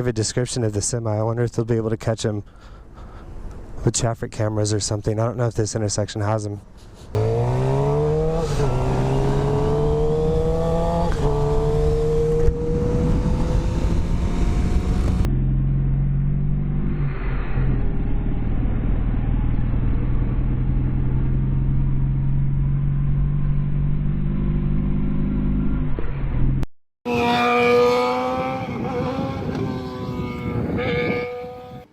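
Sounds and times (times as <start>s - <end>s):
motorcycle engine accelerating hard: 7.2s - 31.9s.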